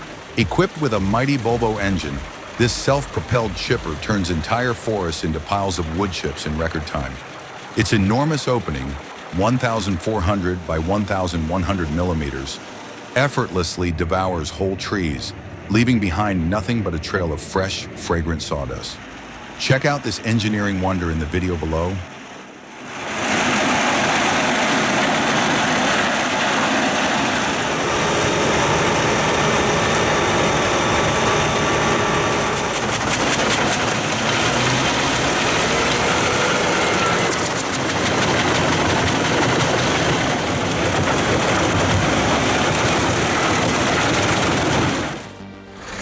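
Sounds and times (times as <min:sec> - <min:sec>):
wood chipper chipping wood: 0:00.0 - 0:09.3, 0:23.1 - 0:46.0.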